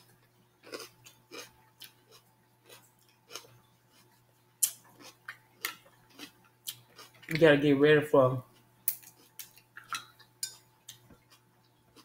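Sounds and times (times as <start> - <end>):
crunchy chewing of raw pepper: 0.6 - 7.3.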